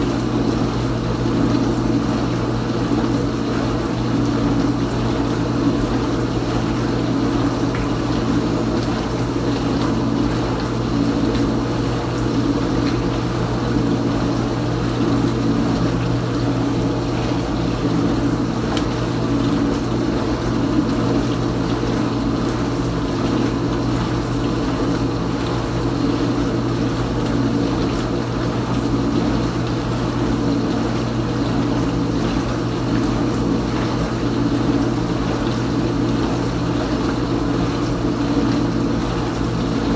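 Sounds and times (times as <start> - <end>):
dishwasher pump motor humming: 0.0 - 39.9.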